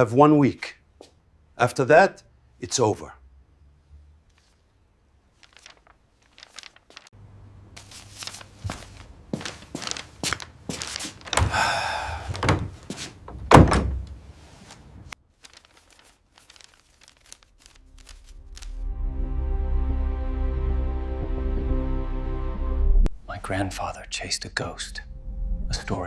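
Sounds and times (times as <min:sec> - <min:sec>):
knocks and thuds: 0:12.4 - 0:14.1.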